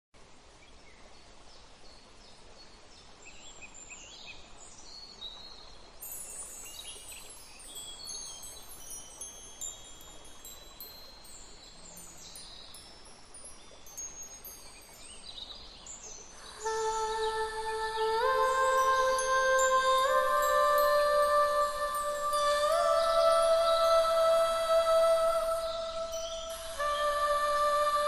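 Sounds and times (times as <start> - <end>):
faint steady hiss: 0.2 - 28.0
faint high chirps: 3.6 - 28.0
metal wind chimes ringing: 6.0 - 28.0.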